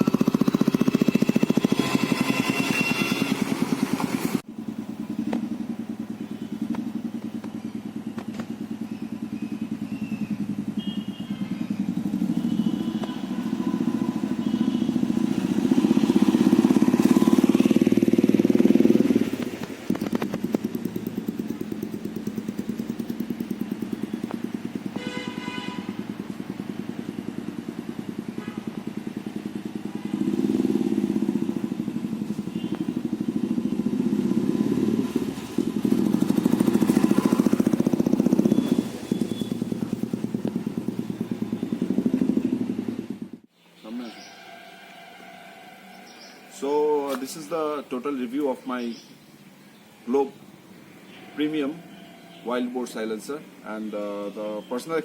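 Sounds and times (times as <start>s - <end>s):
motorcycle exhaust thumping: 0.0s - 43.5s.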